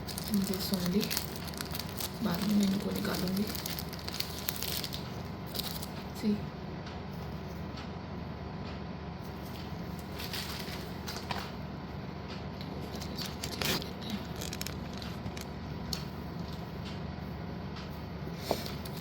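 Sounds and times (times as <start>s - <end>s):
background hum: 0.0s - 19.0s
slate pieces rustling and clicking: 13.0s - 16.6s.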